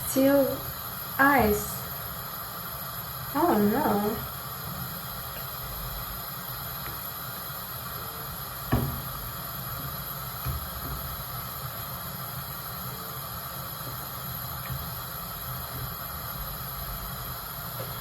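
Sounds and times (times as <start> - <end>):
steady hiss: 0.0 - 18.0
sharp knock: 8.7 - 9.1.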